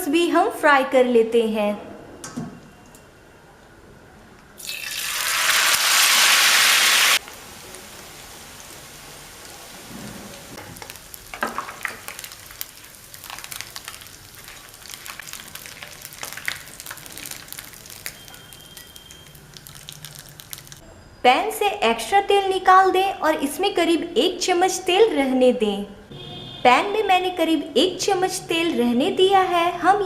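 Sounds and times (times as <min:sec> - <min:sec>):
oil crackling and popping: 0:04.6 - 0:09.8, 0:10.5 - 0:20.8
noodles sizzling in hot oil: 0:04.6 - 0:20.8.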